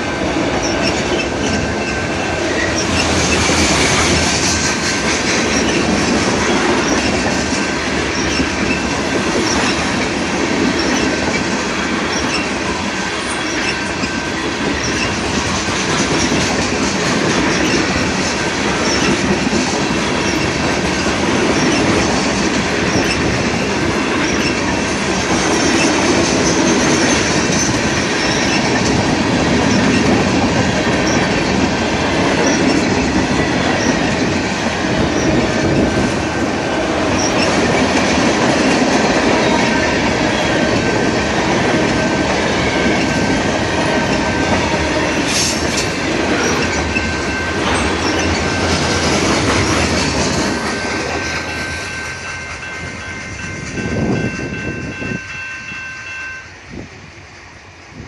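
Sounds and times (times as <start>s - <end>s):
freight train rumbling past: 0.0s - 58.0s
wheel squeal: 0.6s - 4.7s, 8.1s - 8.8s, 12.1s - 12.5s, 46.4s - 48.8s
wheels clattering over rail joints: 0.6s - 12.5s, 13.4s - 54.3s.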